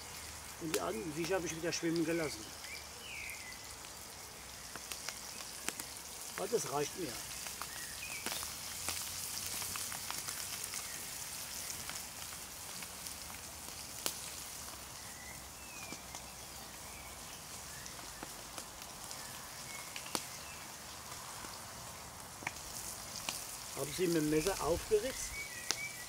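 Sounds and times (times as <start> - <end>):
fish sizzling over a fire: 0.0 - 26.0
pops and crackles: 4.7 - 14.9, 17.8 - 20.4, 21.0 - 26.0.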